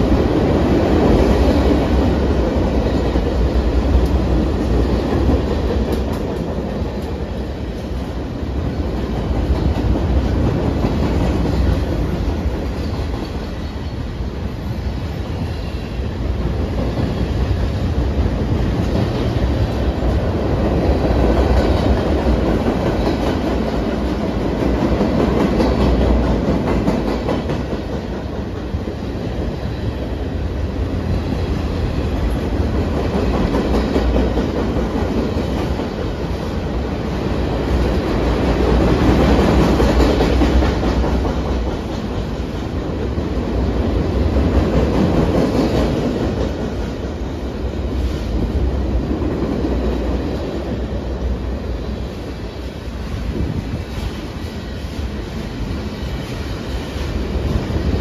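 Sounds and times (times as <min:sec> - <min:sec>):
freight train rumbling past: 0:00.0 - 0:58.0
wheels clickety-clack: 0:00.9 - 0:08.1, 0:18.3 - 0:29.6, 0:32.2 - 0:36.9, 0:37.5 - 0:47.2.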